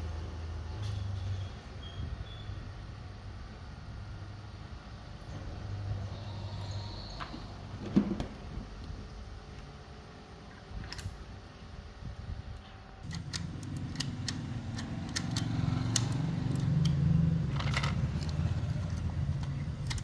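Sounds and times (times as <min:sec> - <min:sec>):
low mechanical hum: 0:00.0 - 0:20.0
sharp metallic clicks and taps: 0:13.0 - 0:20.0.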